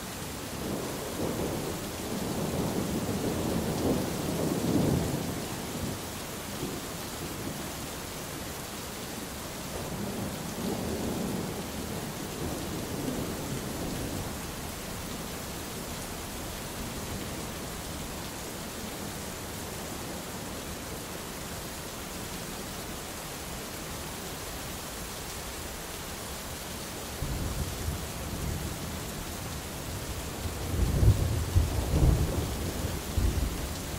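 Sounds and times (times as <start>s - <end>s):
heavy rain hissing: 0.0s - 33.9s
rolling thunder rumble: 29.9s - 33.9s.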